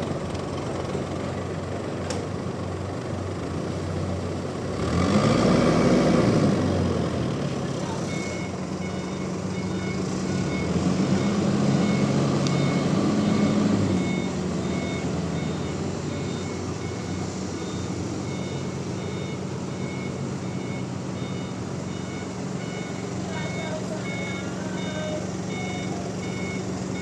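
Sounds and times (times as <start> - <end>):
electronic warning beeper: 8.0 - 27.0.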